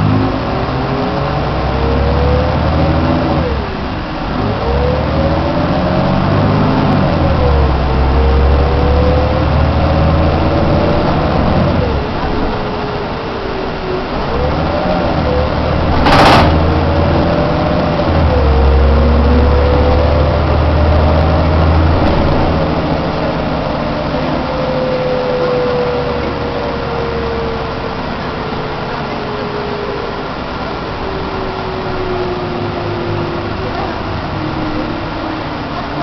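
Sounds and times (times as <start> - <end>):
bus engine rumbling: 0.0 - 36.0.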